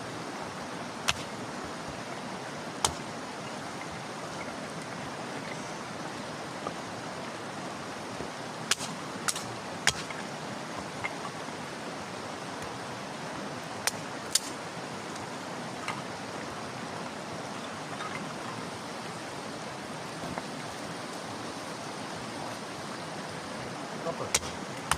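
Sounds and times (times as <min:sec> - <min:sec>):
fire cracks and pops: 0:01.0 - 0:01.4, 0:08.7 - 0:10.2, 0:13.8 - 0:15.2, 0:24.3 - 0:24.9.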